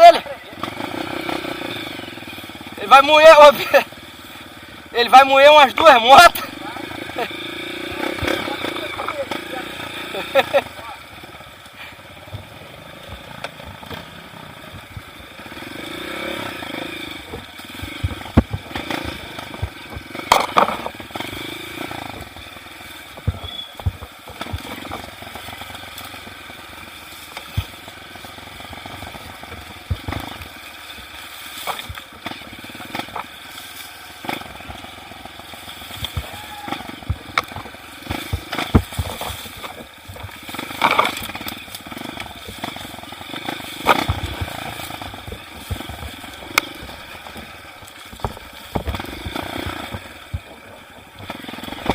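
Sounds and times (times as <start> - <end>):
motorcycle engine running: 0.0 - 51.9
bike clattering over rocks: 19.6 - 21.0, 35.8 - 42.9, 43.8 - 46.9, 47.8 - 50.6.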